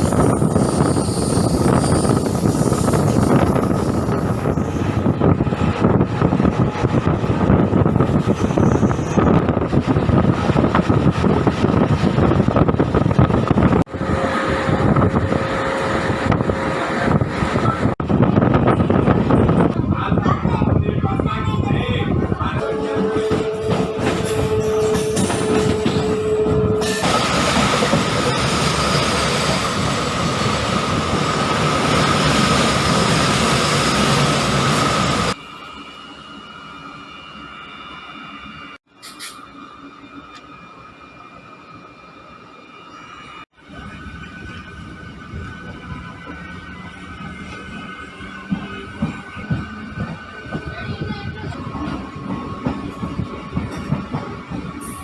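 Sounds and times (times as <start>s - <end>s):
wind buffeting microphone: 0.0s - 28.8s, 43.6s - 55.0s
electric train rumble: 0.0s - 55.0s.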